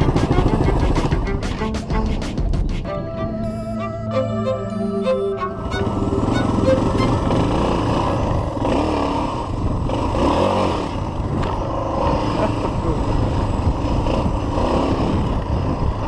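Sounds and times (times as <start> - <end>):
motorcycle engine revving: 0.0 - 1.8, 5.4 - 16.0.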